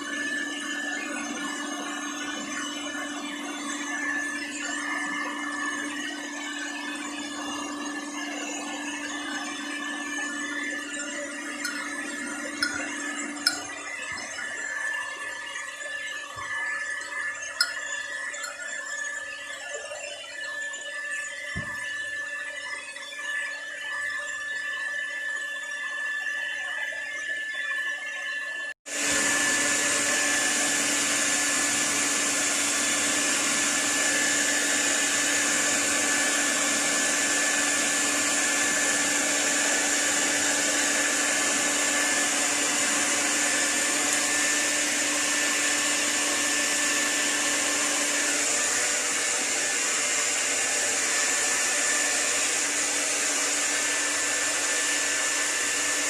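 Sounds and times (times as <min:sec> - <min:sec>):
hair dryer running: 0:00.0 - 0:20.1, 0:21.0 - 0:22.4, 0:28.9 - 0:56.0.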